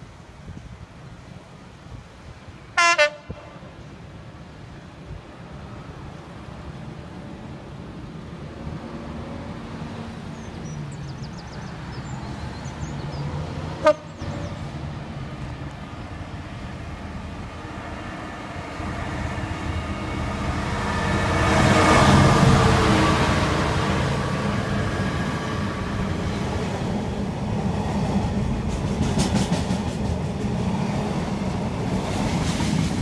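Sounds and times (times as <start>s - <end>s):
train horn blasts: 2.8s - 3.6s, 13.8s - 14.1s
diesel locomotive rumble: 13.4s - 33.0s.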